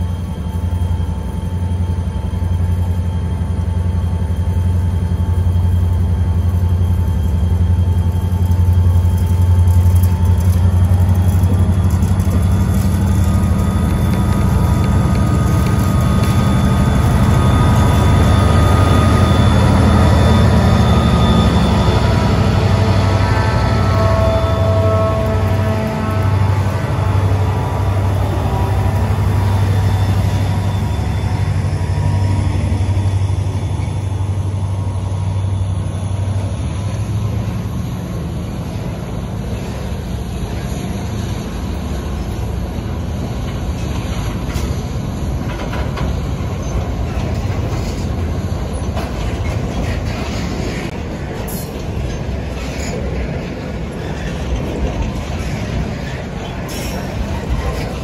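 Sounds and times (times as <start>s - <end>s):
clanks and clicks of train cars: 0.0s - 58.0s
diesel locomotive engine hum: 0.0s - 58.0s
train wheels rumbling on rail: 0.0s - 58.0s.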